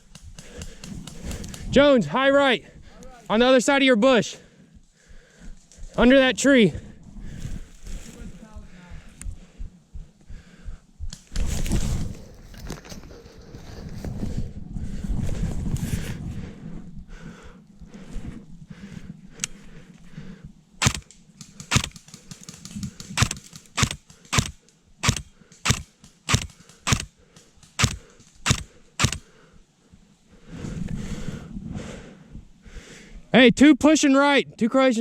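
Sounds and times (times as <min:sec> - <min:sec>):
airsoft gun shots: 0:20.8 - 0:22.0, 0:23.1 - 0:27.1, 0:27.7 - 0:29.2.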